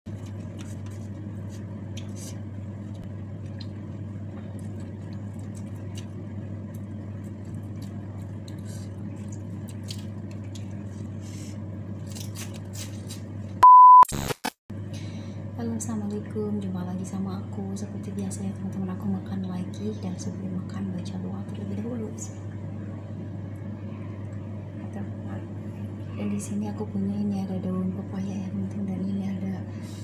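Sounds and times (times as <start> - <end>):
steady low hum: 0.1 - 30.0
chewing leafy vegetables: 0.2 - 11.4, 12.0 - 13.3
short loud beep: 13.6 - 14.3.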